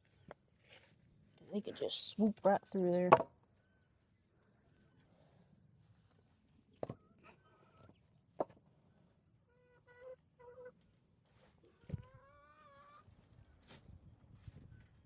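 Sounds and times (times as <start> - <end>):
chickens clucking: 9.5 - 11.0, 11.6 - 13.2.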